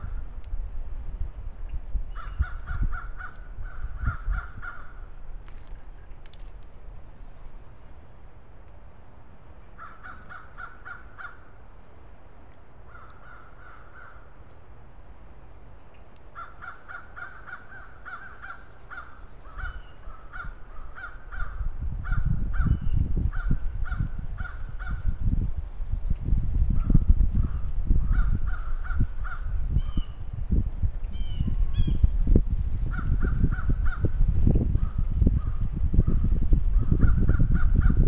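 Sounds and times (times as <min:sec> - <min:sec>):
wind rumble on microphone: 0:00.0 - 0:11.3, 0:16.4 - 0:38.0
birds calling harshly: 0:02.1 - 0:05.1, 0:09.7 - 0:11.8, 0:12.8 - 0:14.4, 0:15.8 - 0:25.2, 0:26.8 - 0:30.2, 0:31.0 - 0:32.1, 0:32.8 - 0:34.2.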